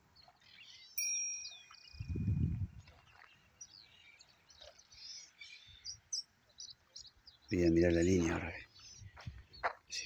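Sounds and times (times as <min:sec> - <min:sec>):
birds chirping: 0:00.0 - 0:10.0
low microphone rumble: 0:02.0 - 0:02.9.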